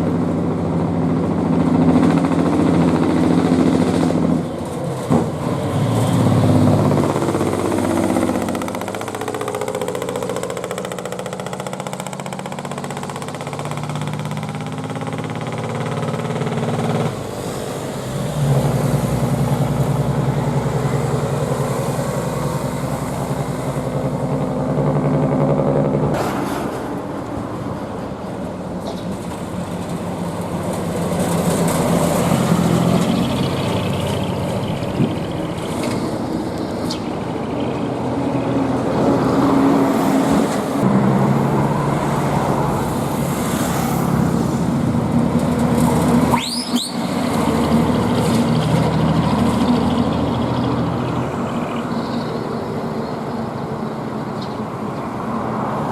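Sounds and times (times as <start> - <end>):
diesel truck engine rumbling: 0.0 - 55.9
brief high squeal: 46.3 - 47.1.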